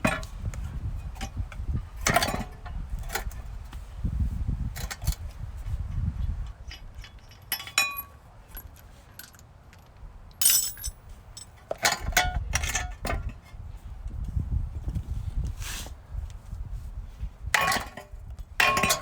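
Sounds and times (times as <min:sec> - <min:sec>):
metal car parts clinking: 0:06.8 - 0:09.4, 0:10.4 - 0:11.9.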